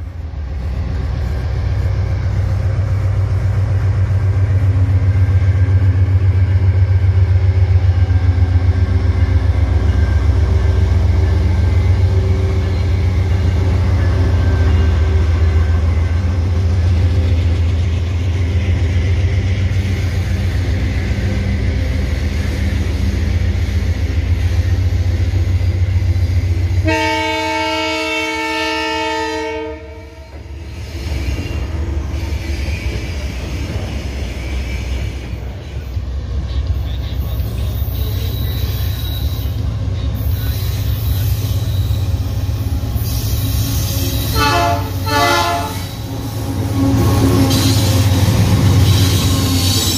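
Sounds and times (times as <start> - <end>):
locomotive engine rumble: 0.0 - 49.9
multi-tone train horn: 26.7 - 30.5, 44.0 - 47.8.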